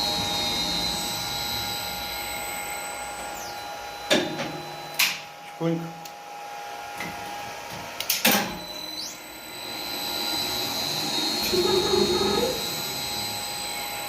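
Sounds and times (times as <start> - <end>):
elevator whirring with high whine: 0.0 - 5.5, 6.2 - 14.0.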